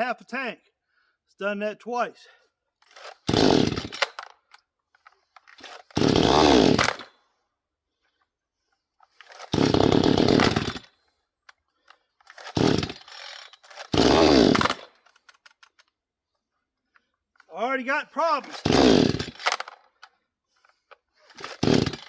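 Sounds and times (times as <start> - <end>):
chainsaw engine bursts: 2.9 - 4.5, 5.4 - 7.2, 9.1 - 11.1, 12.3 - 15.5, 18.2 - 20.0, 20.7 - 22.0.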